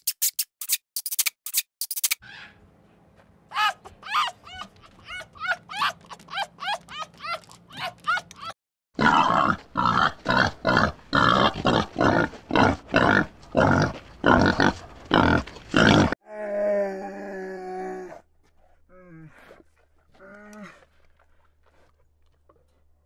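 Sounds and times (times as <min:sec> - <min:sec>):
high chirping squeaks: 0:00.0 - 0:02.5
wild boar grunting: 0:09.0 - 0:16.2.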